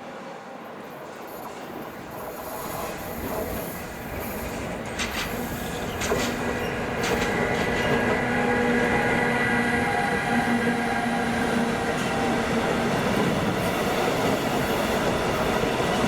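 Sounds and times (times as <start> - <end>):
train whine: 0.0 - 16.0
wheels clacking over rail joints: 4.2 - 8.6.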